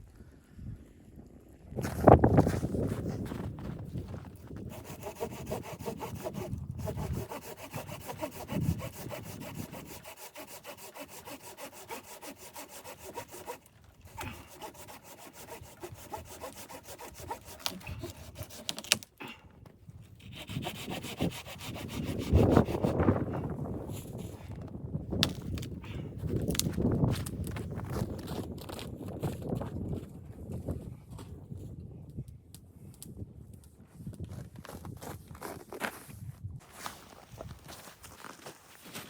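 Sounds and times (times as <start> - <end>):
hand saw cutting wood: 4.6 - 19.1, 20.2 - 23.4.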